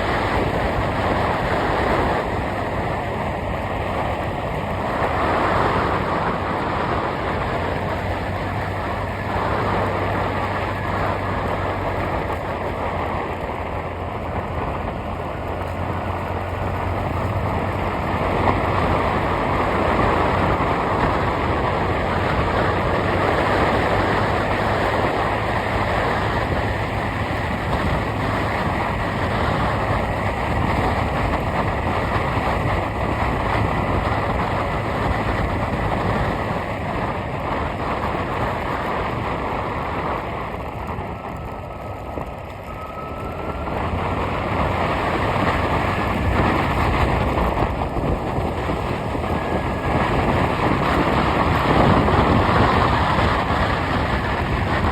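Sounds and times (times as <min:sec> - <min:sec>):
vehicle engine and road noise: 0:00.0 - 0:54.9.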